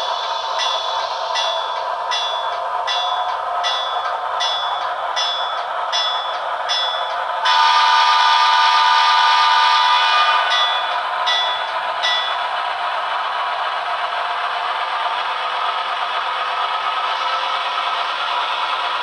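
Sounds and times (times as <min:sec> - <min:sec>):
locomotive bell ringing: 0:00.0 - 0:08.5, 0:09.7 - 0:13.4
locomotive horn blast: 0:07.4 - 0:11.0.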